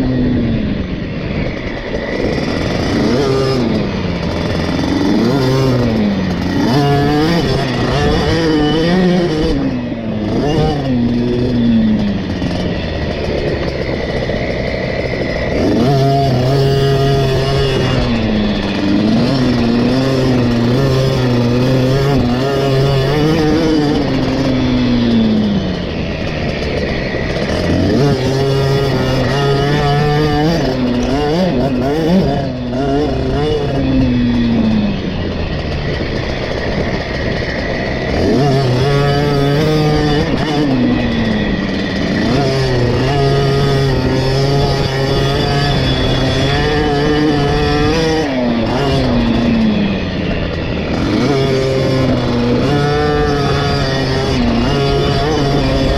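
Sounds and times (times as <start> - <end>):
two-stroke motorcycle engine revving: 0.0 - 55.9.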